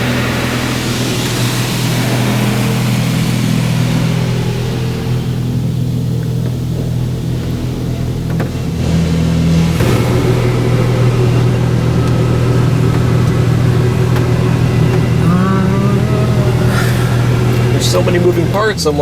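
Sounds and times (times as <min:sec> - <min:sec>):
car wash machine hum: 0:00.0 - 0:19.0
water spraying over car: 0:00.0 - 0:19.0.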